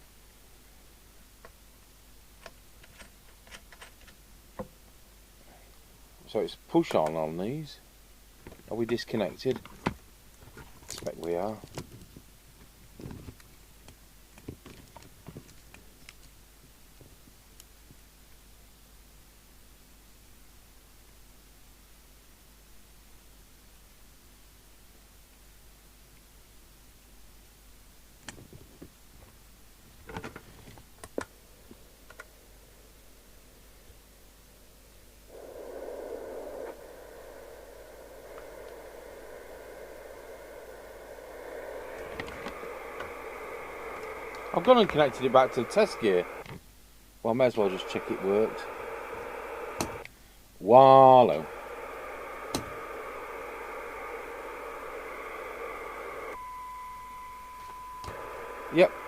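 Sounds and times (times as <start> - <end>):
radio receiver hiss with tones: 5.5 - 9.9, 10.9 - 11.8, 31.0 - 46.6, 47.2 - 59.0.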